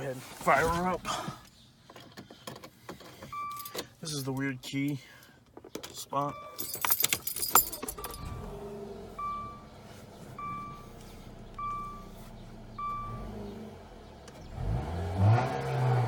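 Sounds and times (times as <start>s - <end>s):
car engine cranking and starting: 5.8s - 16.0s
car engine idling: 7.6s - 14.8s.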